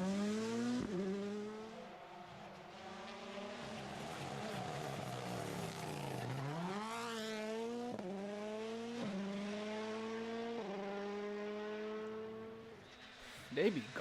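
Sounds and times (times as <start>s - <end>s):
rally car engine revving: 0.0s - 1.8s, 2.8s - 12.7s.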